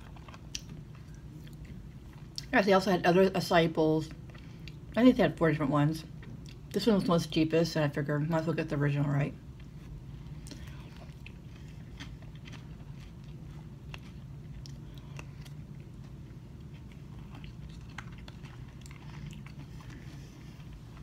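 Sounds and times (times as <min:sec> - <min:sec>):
low hum: 0:00.0 - 0:21.0
chewing mouth sounds: 0:09.6 - 0:21.0.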